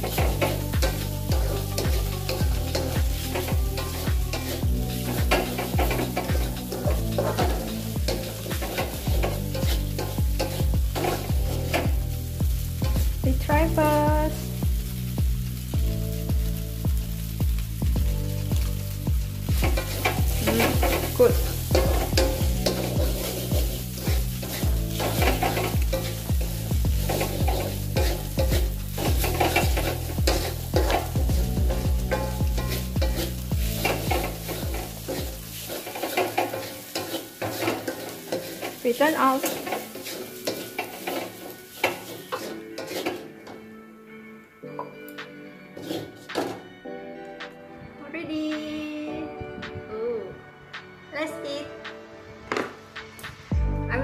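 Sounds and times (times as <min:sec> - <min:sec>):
spatula scraping a pan: 0:00.0 - 0:13.2, 0:19.4 - 0:43.7, 0:45.7 - 0:46.6
food sizzling: 0:00.0 - 0:47.6
background music with steady beat: 0:00.0 - 0:54.0.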